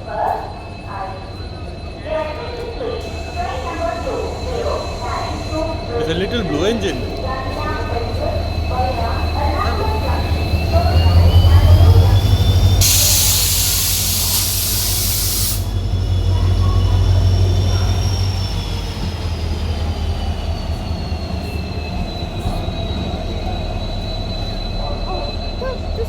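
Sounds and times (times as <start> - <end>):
train rumbling on rails: 0.0 - 26.0
high wheel squeal: 0.3 - 26.0
loud hiss: 12.8 - 15.8.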